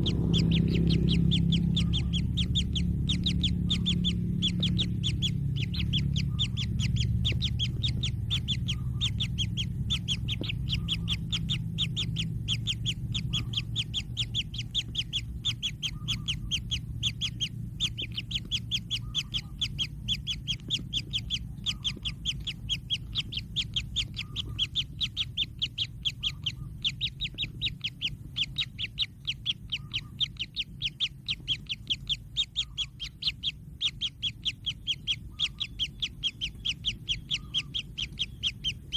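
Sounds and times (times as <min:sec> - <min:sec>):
kingfisher chicks chirping: 0:00.0 - 0:38.9.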